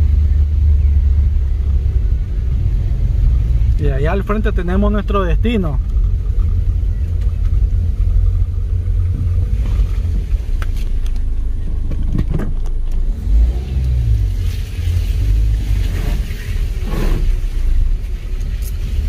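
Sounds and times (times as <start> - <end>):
vehicle driving slowly: 0.0 - 19.0.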